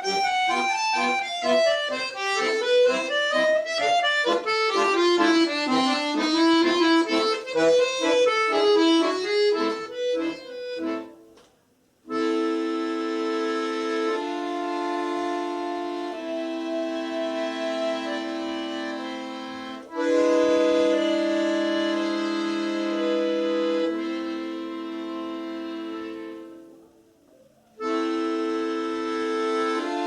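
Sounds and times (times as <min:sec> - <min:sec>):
accordion playing: 0:00.0 - 0:11.5, 0:12.1 - 0:26.8, 0:27.8 - 0:30.0.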